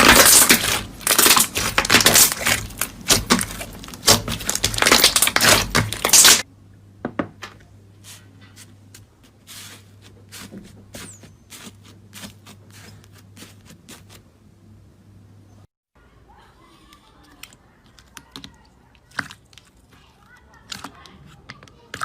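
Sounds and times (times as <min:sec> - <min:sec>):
slime crackling: 0:00.0 - 0:06.5.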